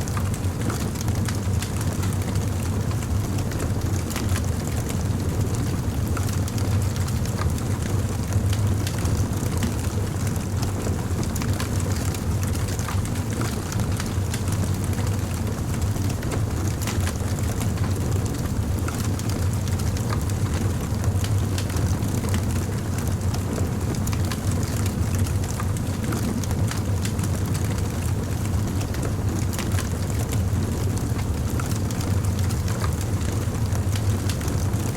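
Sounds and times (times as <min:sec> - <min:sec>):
wood fire crackling: 0:00.2 - 0:02.5, 0:11.3 - 0:20.6, 0:21.2 - 0:30.3, 0:30.9 - 0:34.8.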